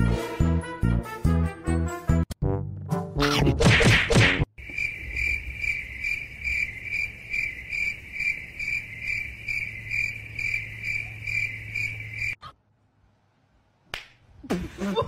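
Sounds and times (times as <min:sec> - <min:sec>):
cricket chirping: 0:04.6 - 0:12.4.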